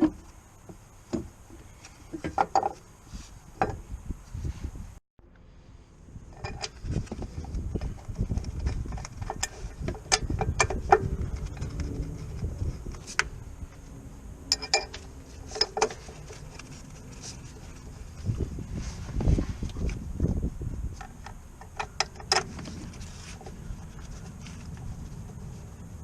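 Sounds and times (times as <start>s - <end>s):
low rumble: 3.9s - 21.4s
metal tools clinking: 14.5s - 17.4s.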